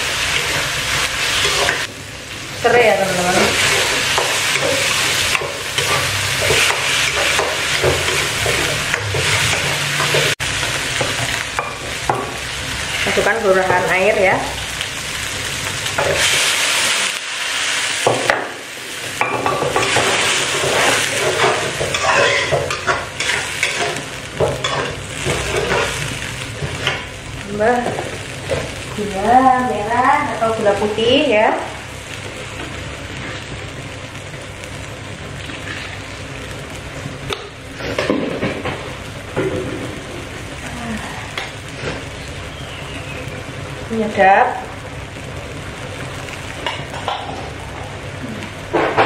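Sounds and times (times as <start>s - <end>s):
metal spatula scraping wok: 0.0s - 1.9s, 3.1s - 10.7s, 19.5s - 27.1s
paste sizzling in a wok: 0.0s - 48.7s.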